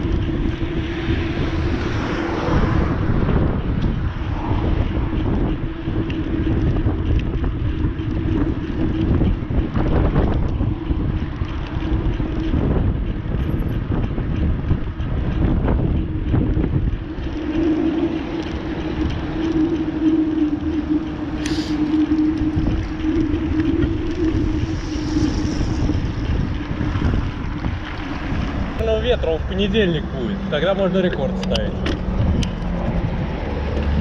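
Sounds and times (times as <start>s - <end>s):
steady low hum: 0.0s - 34.0s
wind buffeting microphone: 0.0s - 34.0s
high hiss: 21.2s - 27.3s.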